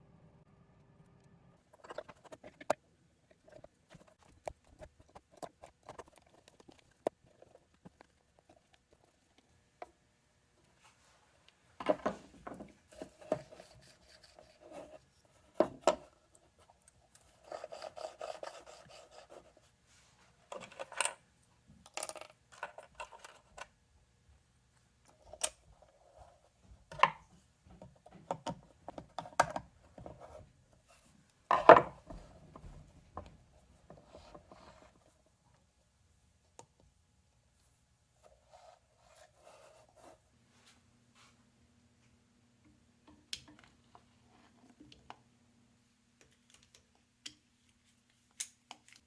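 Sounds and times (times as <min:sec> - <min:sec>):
plastic parts rubbing: 0:01.7 - 0:09.5.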